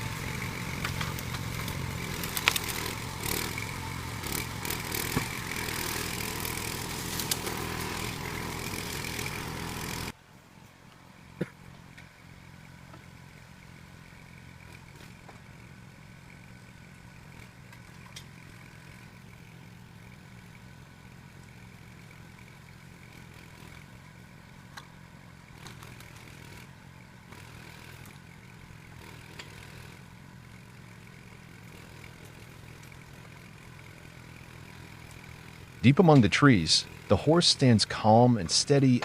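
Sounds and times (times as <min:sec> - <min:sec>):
small engine running: 0:00.0 - 0:10.2, 0:11.0 - 0:39.0.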